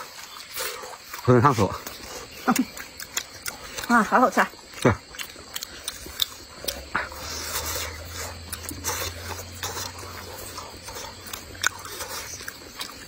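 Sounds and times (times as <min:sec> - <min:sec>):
dumplings being chewed: 0:00.0 - 0:13.0
wet mouth clicks and lip smacks: 0:01.8 - 0:03.9, 0:04.6 - 0:07.2, 0:07.8 - 0:13.0.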